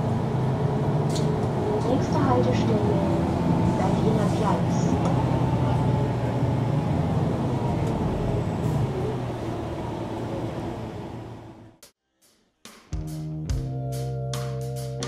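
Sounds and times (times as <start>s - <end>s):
bus diesel engine droning: 0.0s - 11.8s.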